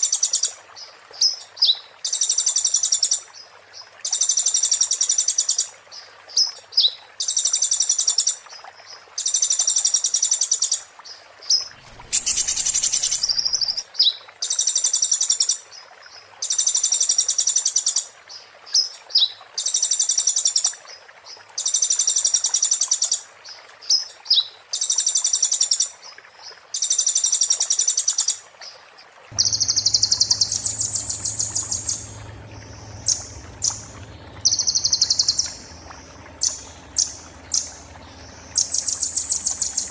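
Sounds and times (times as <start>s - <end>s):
bird singing buzzy trills: 11.5s - 13.8s, 29.3s - 39.9s
low hum: 11.7s - 13.8s, 29.3s - 39.9s.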